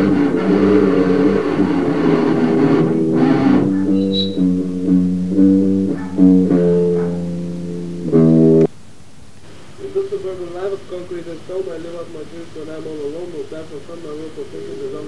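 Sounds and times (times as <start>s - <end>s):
guitar and bass riff: 0.0s - 8.7s
loud guitar chord: 0.0s - 8.7s.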